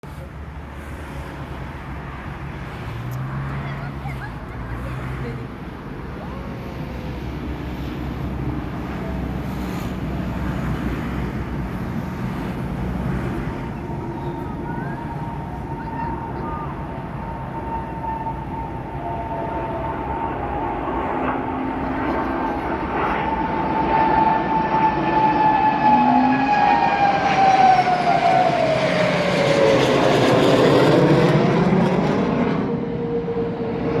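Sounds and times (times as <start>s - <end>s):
jet aircraft rumble: 0.0s - 34.0s.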